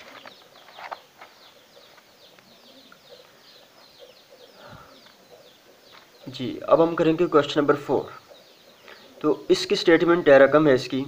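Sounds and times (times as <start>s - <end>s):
notebook page rustling: 0.0s - 2.0s
small birds chirping: 0.0s - 11.0s.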